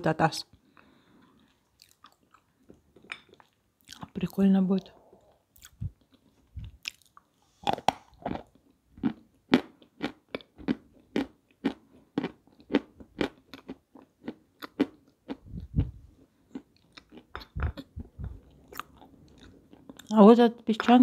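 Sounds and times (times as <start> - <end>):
crunching and chewing clay: 5.6 - 20.1.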